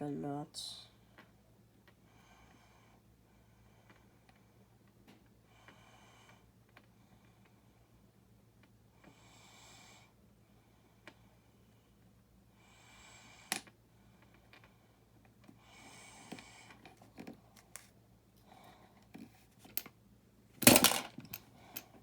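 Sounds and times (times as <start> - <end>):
clicks and rustles of plastic pieces: 16.7 - 17.9, 20.6 - 22.0.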